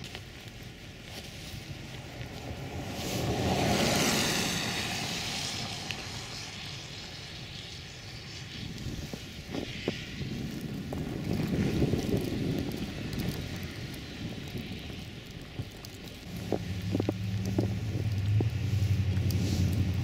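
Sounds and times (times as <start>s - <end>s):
traffic rumble: 0.0s - 20.0s
wind: 0.0s - 20.0s
vehicle passing on snowy road: 0.2s - 20.0s.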